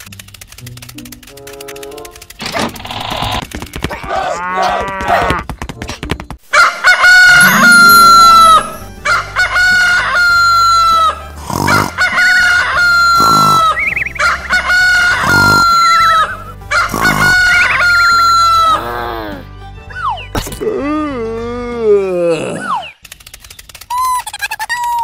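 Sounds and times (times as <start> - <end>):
rooster crowing: 6.6 - 8.7.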